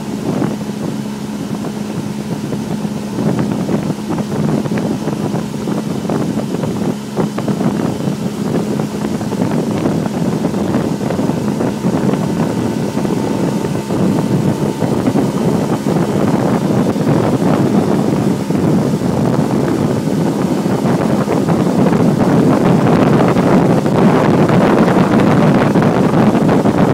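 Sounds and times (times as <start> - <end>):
low hum: 0.0 - 26.9
motorboat engine running: 0.0 - 26.9
water noise: 0.0 - 26.9
wind buffeting microphone: 0.0 - 26.9.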